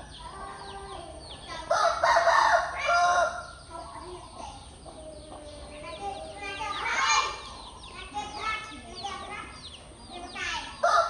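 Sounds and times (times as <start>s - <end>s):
small birds chirping: 0.0s - 11.0s
rooster crowing: 1.7s - 3.6s.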